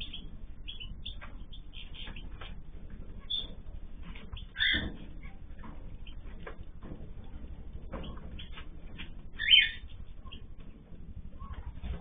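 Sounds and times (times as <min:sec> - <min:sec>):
birds chirping: 0:00.0 - 0:12.0
low background rumble: 0:00.0 - 0:12.0.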